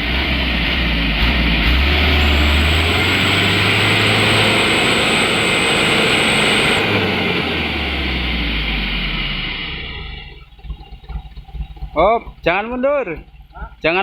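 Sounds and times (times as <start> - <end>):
diesel truck engine labouring: 0.0 - 10.3
thin high whine: 2.2 - 8.4.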